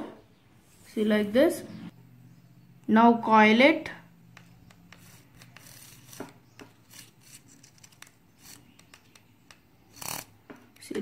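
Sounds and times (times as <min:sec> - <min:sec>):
paper strip rubbing and ticking: 0:04.3 - 0:10.4.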